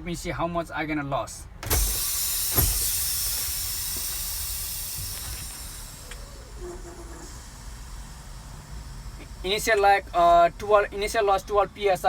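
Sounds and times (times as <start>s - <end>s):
brake release click: 1.6s - 10.8s
compressed air hissing from brakes: 1.6s - 12.0s.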